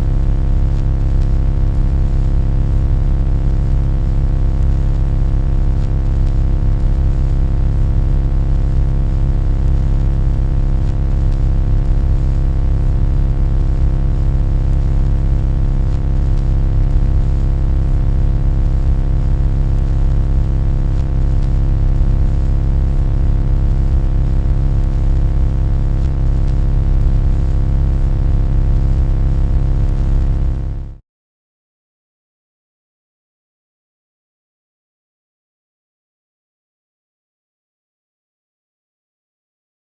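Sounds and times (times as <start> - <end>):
loud low hum with tones: 0.0 - 31.0.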